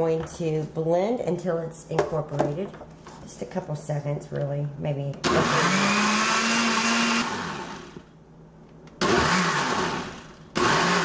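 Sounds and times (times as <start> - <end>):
blender motor pulsing: 5.2 - 8.0, 9.0 - 11.0.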